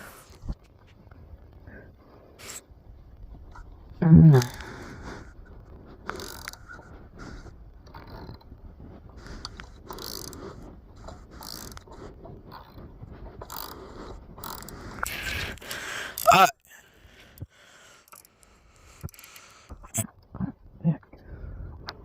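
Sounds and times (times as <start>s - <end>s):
ratchet wrench clicking: 6.2s - 6.6s, 9.9s - 10.4s, 11.4s - 11.8s, 13.5s - 13.8s, 14.4s - 14.8s, 19.0s - 19.5s.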